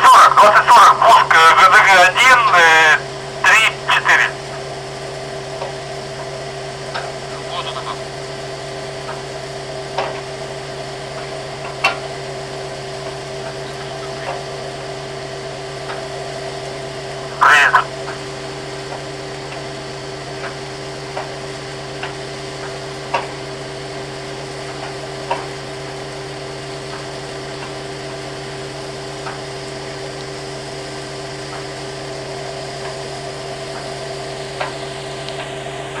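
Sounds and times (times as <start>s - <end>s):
ship engine drone: 0.0s - 36.0s
light ticks and knocks: 24.7s - 25.6s.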